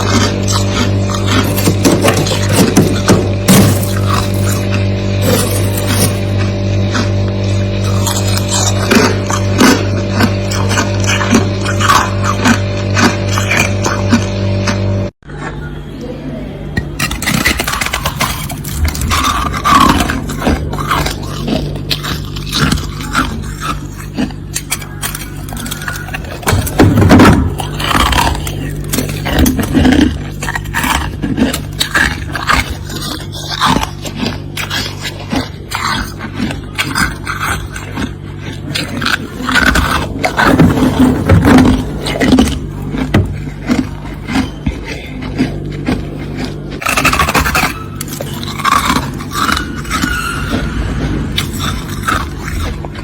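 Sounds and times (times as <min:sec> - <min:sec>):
frost being scraped and crunched: 0:00.0 - 0:14.7, 0:17.0 - 0:38.0, 0:38.6 - 0:53.0
steady low hum: 0:00.0 - 0:53.0
frost scraped off freezer: 0:38.7 - 0:53.0.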